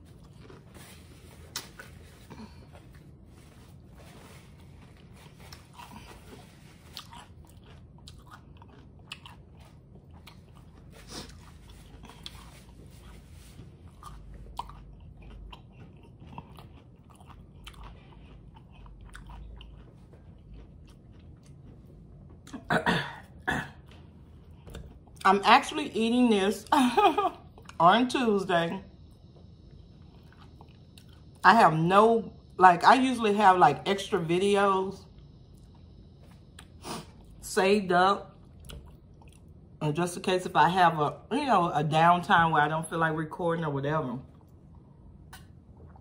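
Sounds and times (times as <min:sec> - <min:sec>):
chewing crunchy taco shell: 0:00.0 - 0:25.3, 0:29.0 - 0:31.4, 0:35.1 - 0:37.5, 0:38.3 - 0:39.8, 0:44.3 - 0:46.0.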